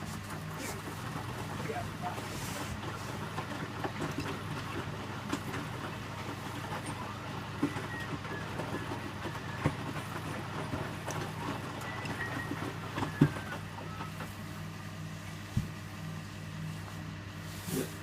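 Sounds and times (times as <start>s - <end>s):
washing machine motor hum: 0.0s - 18.0s.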